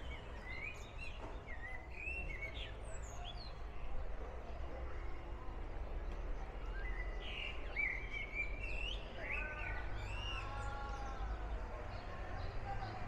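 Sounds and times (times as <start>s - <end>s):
bird singing whistled notes: 0.0s - 3.6s, 6.7s - 10.5s.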